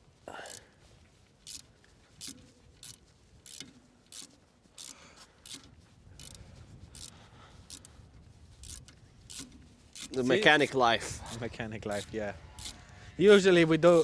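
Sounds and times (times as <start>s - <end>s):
socket ratchet clicking: 1.4s - 6.4s, 7.0s - 7.9s, 8.6s - 10.3s, 11.9s - 12.8s.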